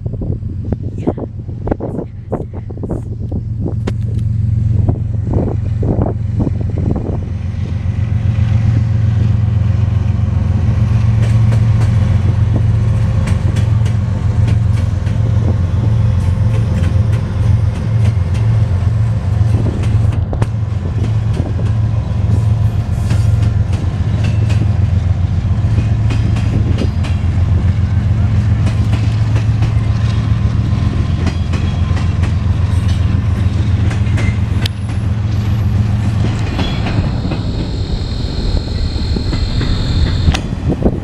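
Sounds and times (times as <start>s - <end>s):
freight train rumbling: 0.0s - 41.0s
wheels clicking over rail joints: 22.9s - 37.2s.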